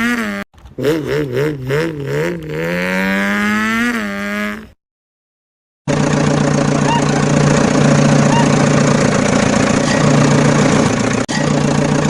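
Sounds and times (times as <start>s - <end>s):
vehicle engine idling: 5.9s - 12.0s.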